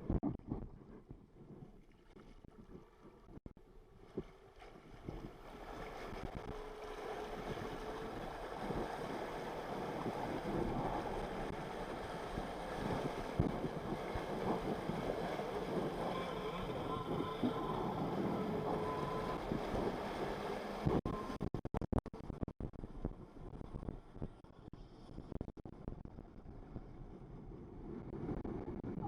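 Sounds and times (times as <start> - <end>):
jet ski running: 3.6 - 21.5
water rushing: 4.4 - 21.0.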